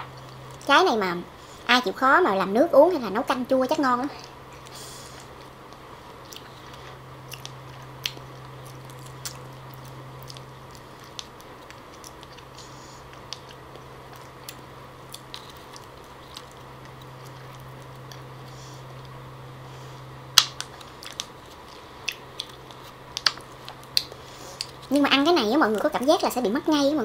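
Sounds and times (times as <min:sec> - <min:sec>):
steady low hum: 0:00.0 - 0:27.0
person chewing fruit: 0:04.5 - 0:25.0.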